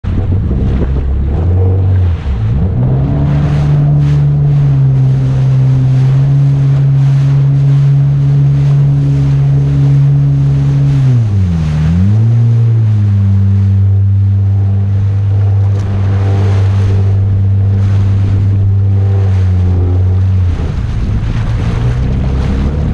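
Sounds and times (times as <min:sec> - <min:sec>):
jet ski engine running: 0:00.0 - 0:22.9
water rushing: 0:00.0 - 0:22.9
wind buffeting microphone: 0:00.0 - 0:22.9.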